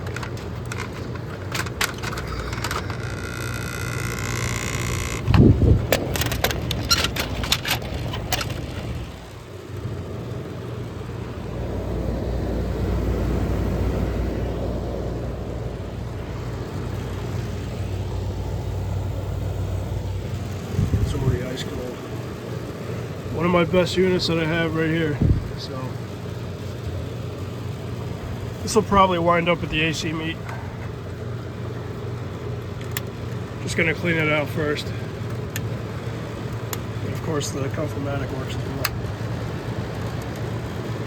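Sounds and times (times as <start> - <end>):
clicks and knocks: 0.0 - 9.1
air conditioner humming: 0.0 - 41.0.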